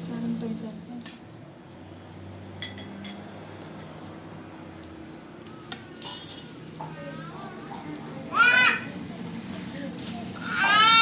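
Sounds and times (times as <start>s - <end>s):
dishes clinking: 2.6s - 3.4s, 6.0s - 6.6s.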